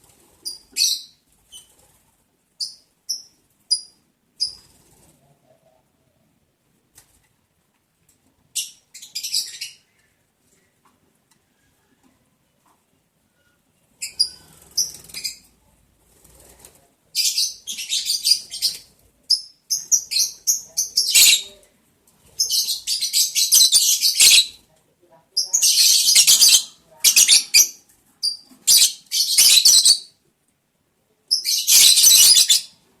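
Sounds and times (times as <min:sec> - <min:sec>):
lovebirds harsh high calls: 0:17.2 - 0:21.6, 0:22.3 - 0:24.6, 0:25.5 - 0:30.1, 0:31.3 - 0:32.8.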